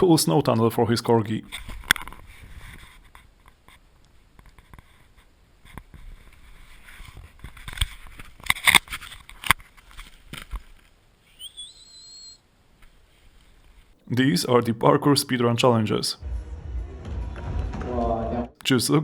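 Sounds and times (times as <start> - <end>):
high whistle: 11.4 - 12.4.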